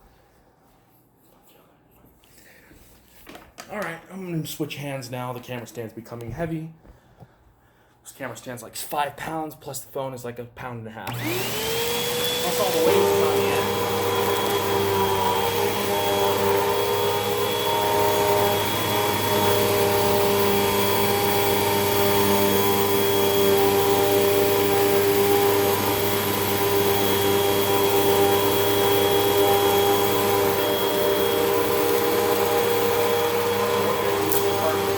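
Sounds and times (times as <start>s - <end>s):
vacuum cleaner running: 11.1s - 34.9s.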